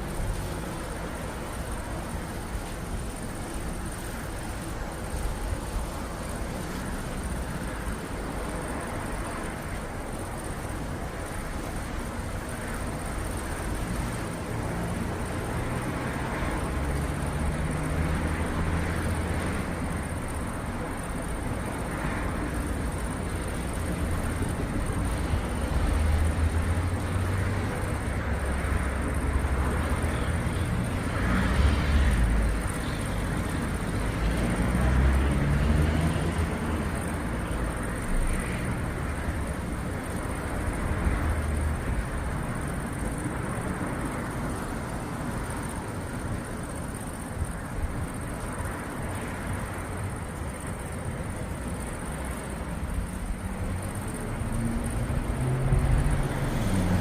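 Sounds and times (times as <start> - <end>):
steady rush of rain noise: 0.0 - 30.1.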